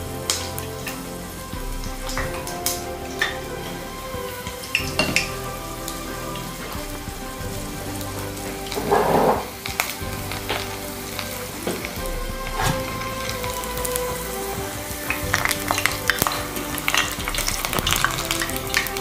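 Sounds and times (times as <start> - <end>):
food deep-frying in oil: 0.1 - 19.0.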